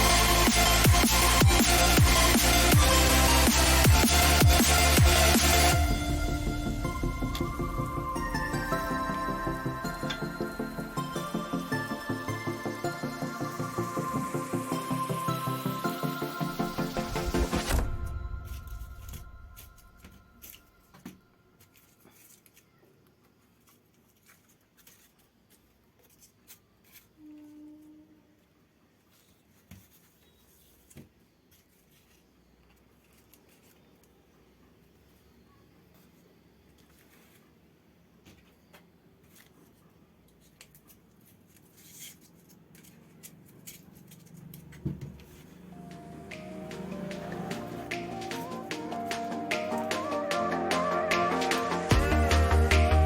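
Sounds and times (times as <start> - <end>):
clicks and rustles of handling: 38.2 - 45.4.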